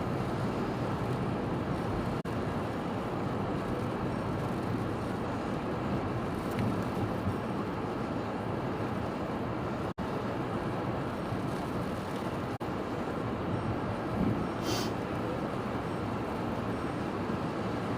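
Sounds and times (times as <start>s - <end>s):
rough sea: 0.0s - 17.9s
strong wind: 0.0s - 17.9s
wind on microphone: 0.0s - 17.9s.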